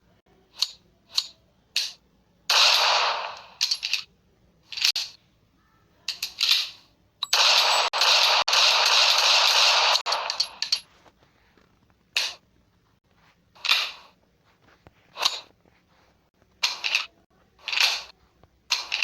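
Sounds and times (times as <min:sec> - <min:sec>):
pistol shots: 0:02.5 - 0:03.6, 0:07.2 - 0:10.8.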